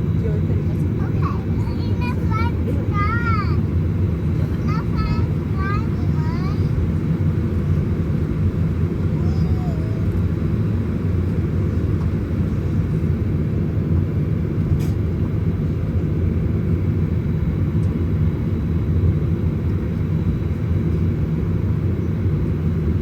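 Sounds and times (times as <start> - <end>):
cabin air noise: 0.0 - 17.2
jet engines low rumble: 0.0 - 23.0.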